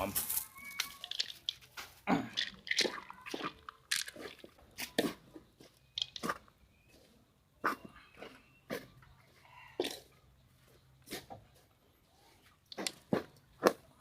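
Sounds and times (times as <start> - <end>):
wet crunching and squishing bait: 0.3 - 5.2, 5.8 - 6.8.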